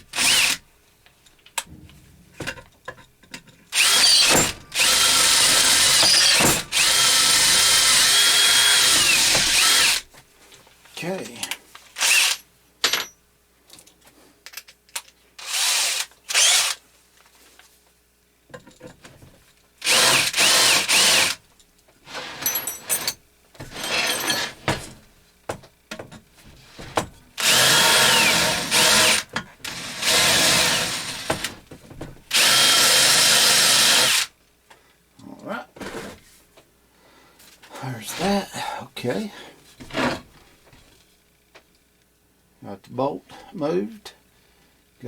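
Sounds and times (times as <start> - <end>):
electric drill whining: 0.0 - 0.6, 3.7 - 10.0, 15.4 - 16.8, 19.8 - 21.4, 27.4 - 31.6, 32.3 - 34.3.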